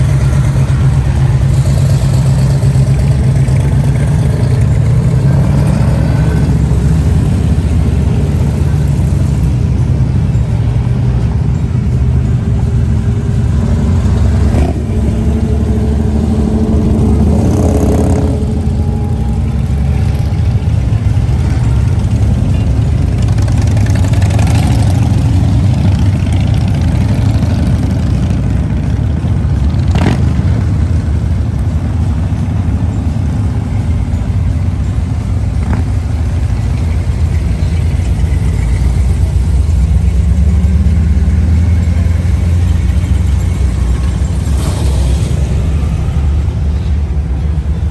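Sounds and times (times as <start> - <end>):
car engines revving: 0.0 - 47.9.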